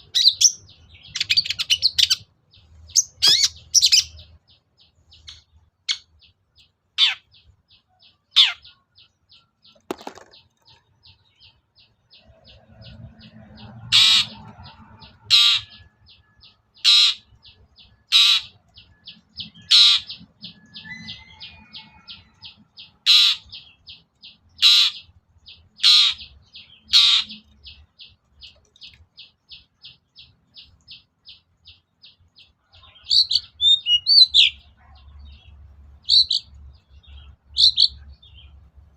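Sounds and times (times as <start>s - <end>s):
bird chattering: 0.0s - 6.3s, 7.0s - 15.9s, 16.8s - 32.2s.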